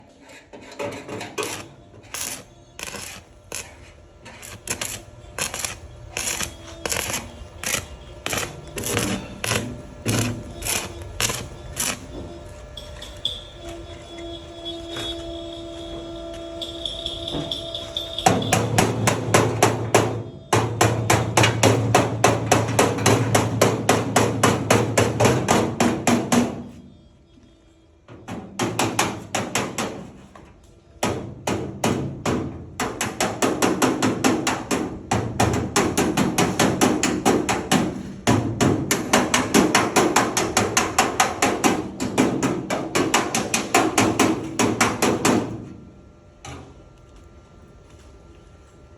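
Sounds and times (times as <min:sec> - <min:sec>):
rapid hammer blows: 0:01.4 - 0:12.2.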